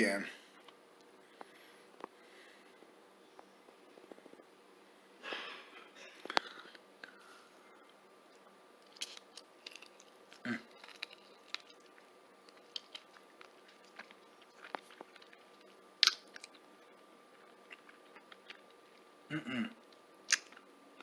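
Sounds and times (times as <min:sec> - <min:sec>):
person chewing crunchy food: 0:08.4 - 0:19.1, 0:20.3 - 0:20.7.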